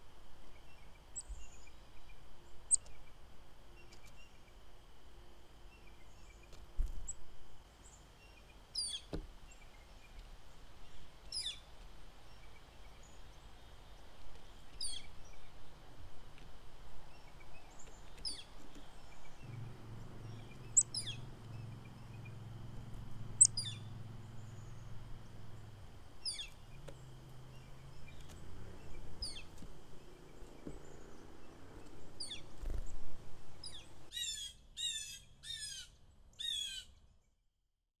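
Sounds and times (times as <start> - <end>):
songbird downward calls: 19.4 - 22.4, 23.3 - 25.0, 26.2 - 26.7, 33.6 - 36.9.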